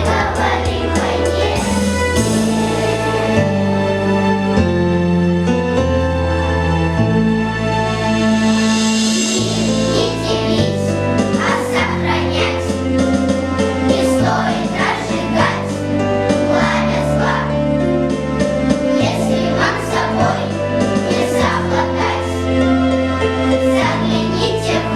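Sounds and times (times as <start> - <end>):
choir singing: 0.0 - 3.8, 9.5 - 13.0, 13.6 - 17.9, 18.8 - 24.9
instrumental accompaniment: 0.0 - 24.9.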